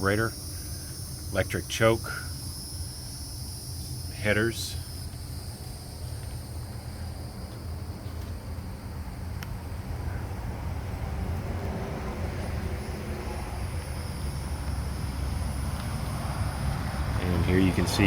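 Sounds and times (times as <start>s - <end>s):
faint high-pitched whine: 0.0s - 18.0s.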